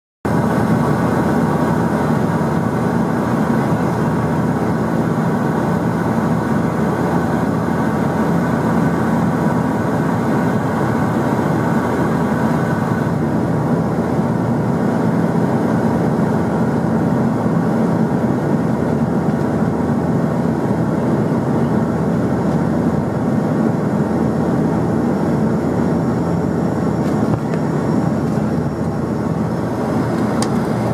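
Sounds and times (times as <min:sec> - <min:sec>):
airliner engines roaring: 0:00.3 - 0:30.9
steady engine tones: 0:00.3 - 0:30.9
rushing air: 0:24.9 - 0:30.9.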